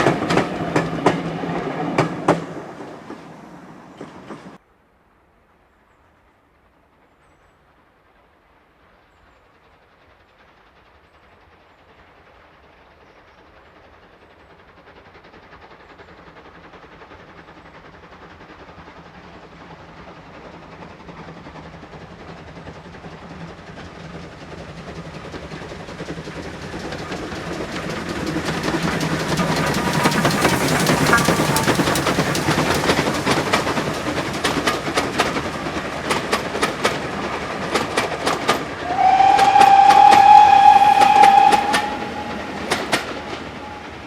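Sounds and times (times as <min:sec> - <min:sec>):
steam train approaching: 0:00.0 - 0:04.6, 0:05.2 - 0:44.0.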